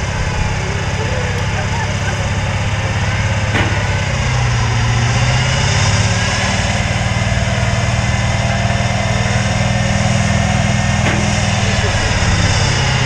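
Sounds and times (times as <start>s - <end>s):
pickup truck engine running: 0.0s - 13.0s.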